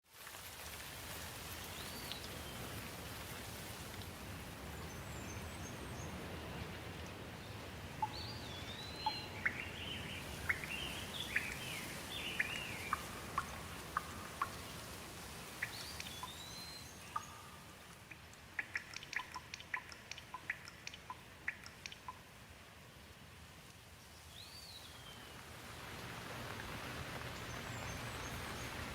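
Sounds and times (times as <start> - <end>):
steady rain falling: 0.0 - 28.9
water drops plinking: 8.0 - 14.9, 15.6 - 22.2.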